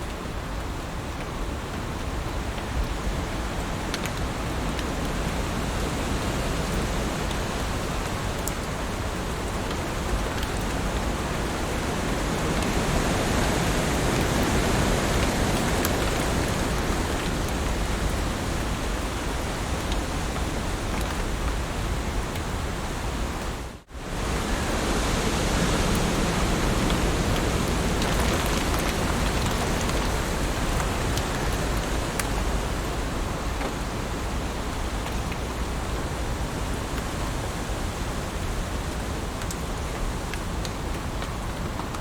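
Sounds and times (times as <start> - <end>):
heavy rain hiss: 0.0 - 42.0
raindrop ticks: 3.5 - 5.4, 6.7 - 11.8, 13.6 - 22.5, 25.9 - 33.8, 38.4 - 42.0.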